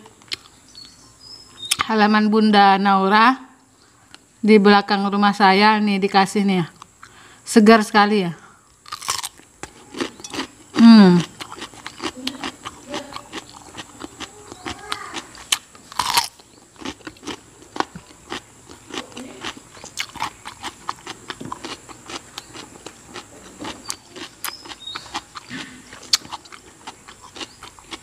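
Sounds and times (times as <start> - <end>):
chewing crisp cucumber: 0.1 - 0.6, 8.8 - 28.0.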